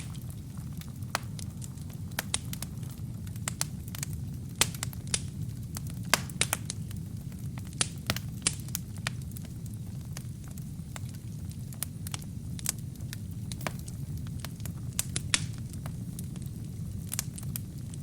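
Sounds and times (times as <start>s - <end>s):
burning logs crackling and popping: 0.0s - 18.0s
fire flames rumbling: 0.0s - 18.0s.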